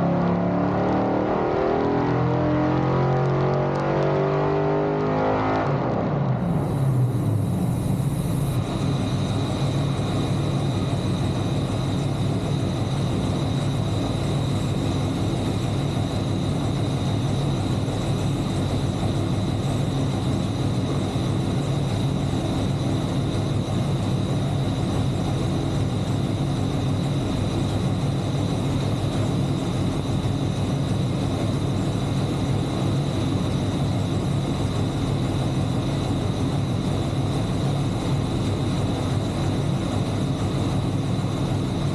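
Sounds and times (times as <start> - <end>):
engine running on dyno: 0.0 - 41.9
thin high whine: 6.4 - 11.4.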